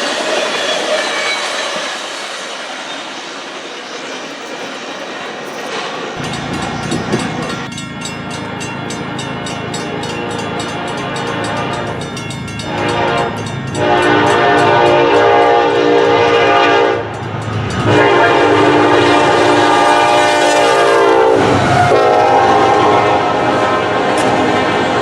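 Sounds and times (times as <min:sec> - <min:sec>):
diesel locomotive running: 0:00.0 - 0:25.0
locomotive air horn blasts: 0:12.6 - 0:17.1, 0:17.8 - 0:24.8.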